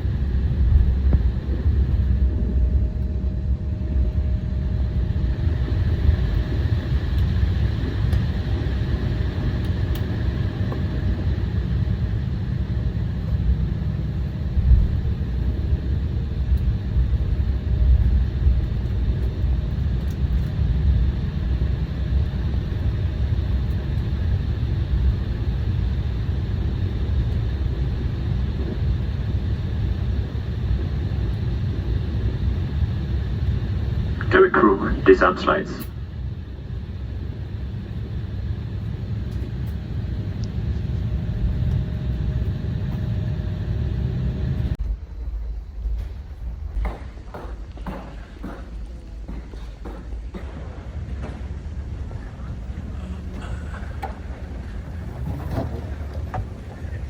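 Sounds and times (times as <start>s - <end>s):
jet engines idling rumble: 0.0s - 57.0s
wheels bumping: 52.8s - 57.0s.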